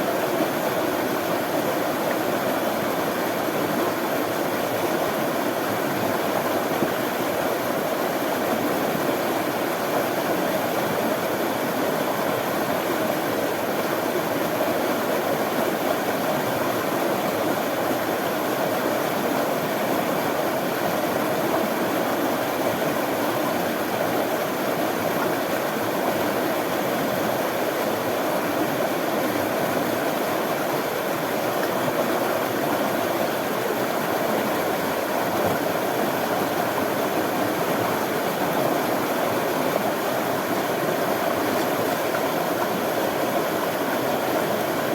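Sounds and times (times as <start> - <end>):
stream flowing: 0.0 - 44.9.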